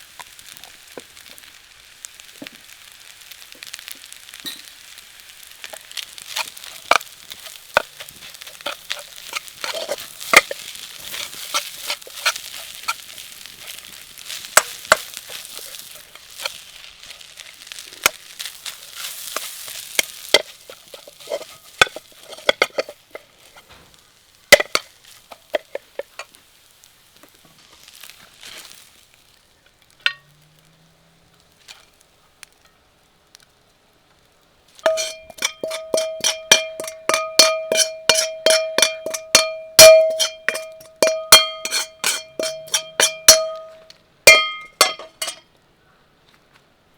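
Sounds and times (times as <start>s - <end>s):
food sizzling in a wok: 0.0s - 45.4s
metal ladle striking and scraping wok: 5.6s - 16.8s, 18.0s - 23.7s, 24.6s - 26.4s, 30.0s - 30.3s, 34.8s - 45.4s.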